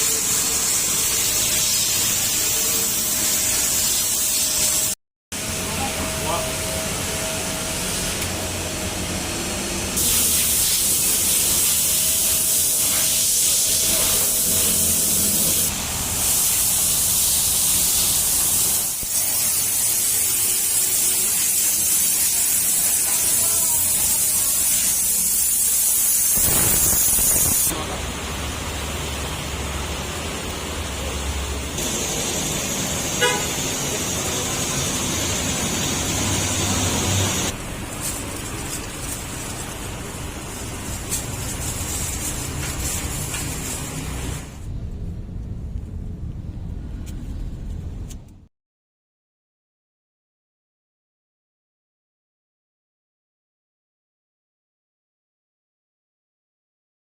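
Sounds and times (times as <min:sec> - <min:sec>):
high-pressure water jet hissing: 0:00.0 - 0:44.6.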